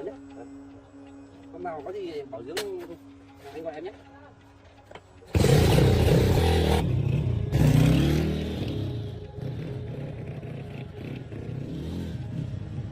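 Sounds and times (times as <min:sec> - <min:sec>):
motorcycle engine revving: 0:05.3 - 0:12.9.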